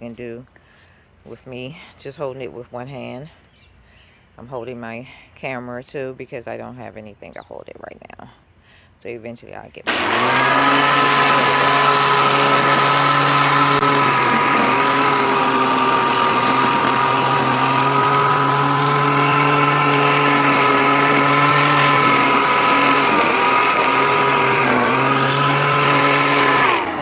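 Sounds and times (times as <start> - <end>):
string trimmer cutting grass: 9.8 - 27.0.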